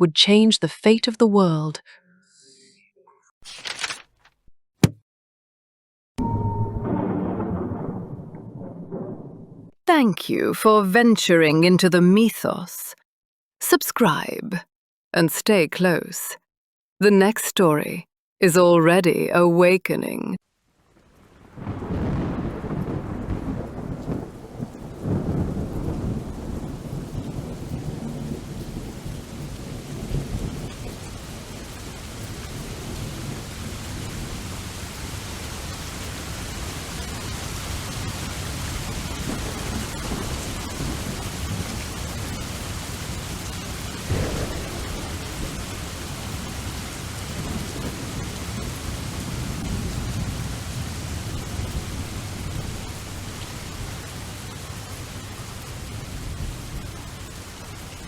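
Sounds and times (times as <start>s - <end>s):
low rumbles of thunder: 6.2s - 9.8s, 21.0s - 34.5s, 39.0s - 54.8s
sharp thunder crack: 6.2s - 9.8s, 21.5s - 31.2s, 44.0s - 50.5s
steady rain falling: 20.4s - 58.0s.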